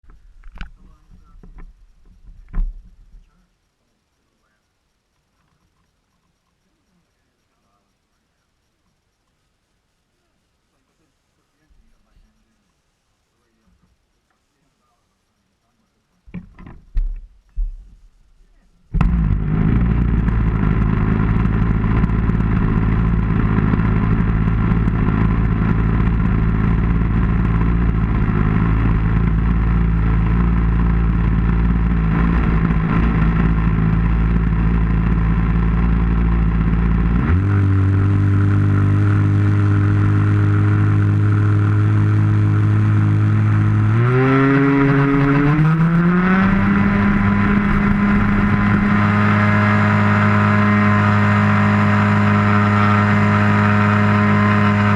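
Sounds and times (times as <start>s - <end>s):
model airplane engine: 18.9s - 54.9s.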